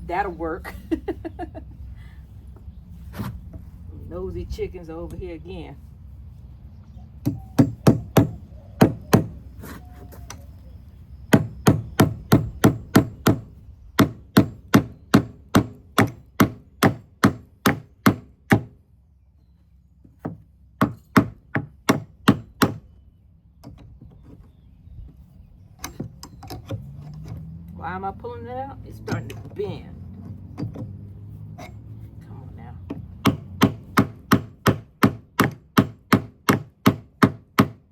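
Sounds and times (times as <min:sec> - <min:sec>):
hammer driving nail into wood: 0:11.3 - 0:18.7, 0:33.2 - 0:37.8.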